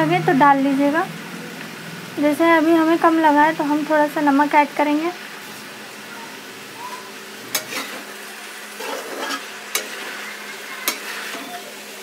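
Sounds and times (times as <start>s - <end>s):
vegetables sizzling in a pan: 0.0s - 12.0s
metal spatula scraping pan: 7.5s - 11.6s.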